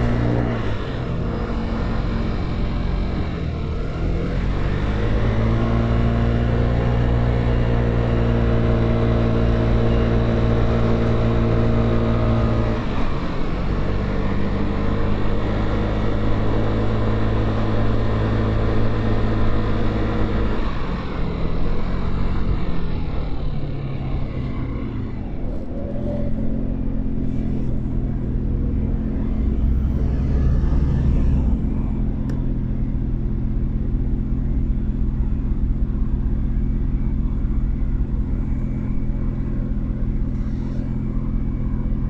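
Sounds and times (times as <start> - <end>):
motorcycle engine: 21.6 - 42.0.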